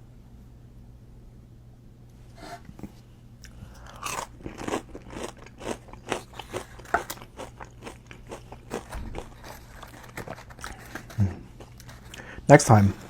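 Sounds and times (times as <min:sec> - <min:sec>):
crunchy chewing of sandwich: 0:02.8 - 0:12.3.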